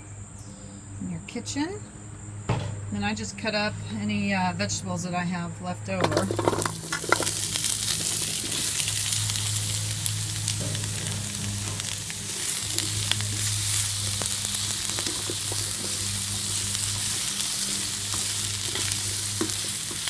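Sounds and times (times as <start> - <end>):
low steady hum: 0.0 - 20.0
vegetables sizzling in oil: 6.0 - 20.0.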